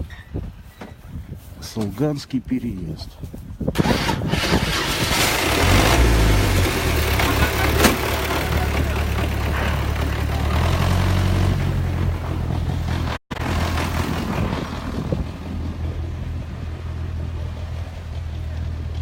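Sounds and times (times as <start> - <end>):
car engine humming: 4.7 - 19.0.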